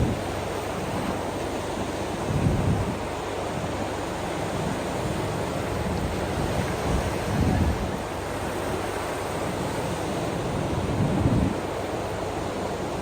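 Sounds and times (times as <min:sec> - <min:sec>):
wind buffeting the microphone: 0:02.1 - 0:12.2.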